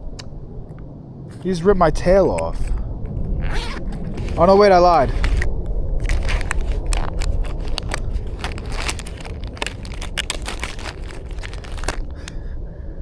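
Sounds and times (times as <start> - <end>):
microphone handling rumble: 0.0 - 12.4
plastic lures crinkling: 4.2 - 12.3.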